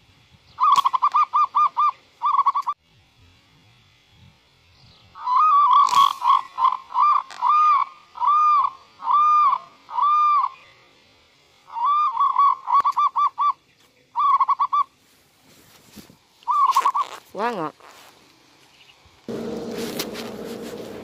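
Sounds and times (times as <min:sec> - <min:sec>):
bird whistled call: 0:05.2 - 0:10.8, 0:11.7 - 0:14.9.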